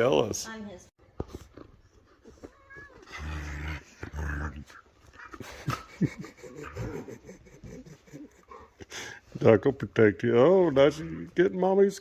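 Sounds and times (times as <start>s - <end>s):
dog play-growling: 3.0s - 5.7s.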